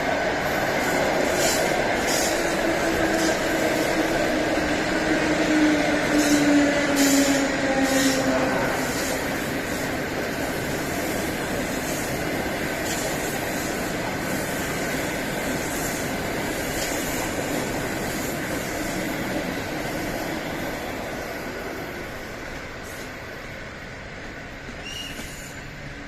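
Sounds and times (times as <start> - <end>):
train wheels rumbling on track: 0.0 - 26.0.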